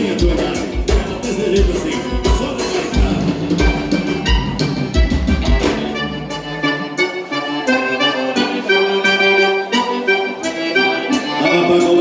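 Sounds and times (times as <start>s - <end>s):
bass and drum beat: 0.0s - 6.3s
button accordion playing: 0.0s - 12.0s.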